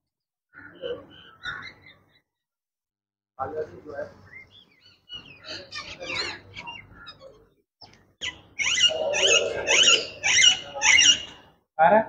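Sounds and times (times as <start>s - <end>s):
birds squawking harshly: 0.5s - 2.2s, 4.6s - 7.5s, 8.2s - 11.6s.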